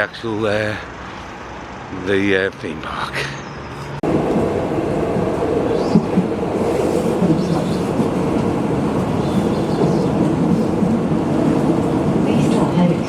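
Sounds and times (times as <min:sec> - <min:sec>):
low rumble inside a tram: 0:01.9 - 0:13.0.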